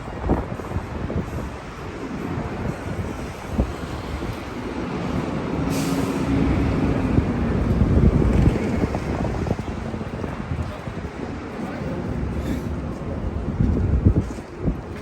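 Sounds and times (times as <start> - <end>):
heavy vehicle engine rumble: 0.0 - 15.0
short hiss of air: 5.6 - 6.4.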